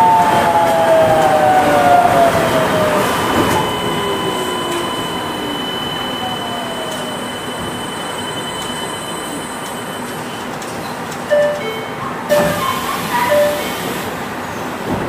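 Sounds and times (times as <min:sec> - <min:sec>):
train rolling rumble: 0:00.0 - 0:15.0
traction motor whine: 0:01.2 - 0:07.7.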